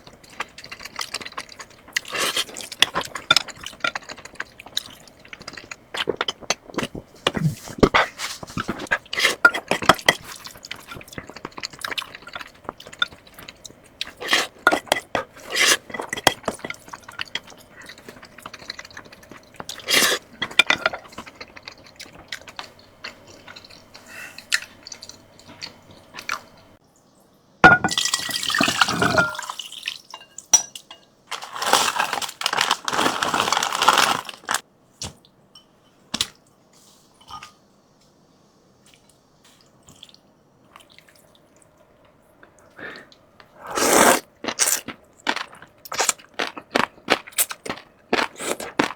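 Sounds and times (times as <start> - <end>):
slurping noodle soup: 5.4 - 25.0, 42.8 - 44.8.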